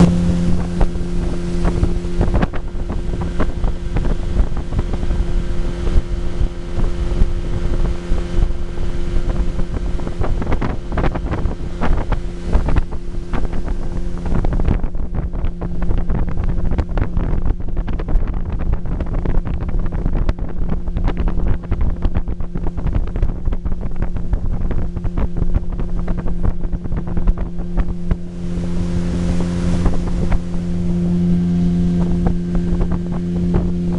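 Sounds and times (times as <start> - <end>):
outboard motor running: 0.0 - 33.9
wind buffeting microphone: 0.0 - 33.9.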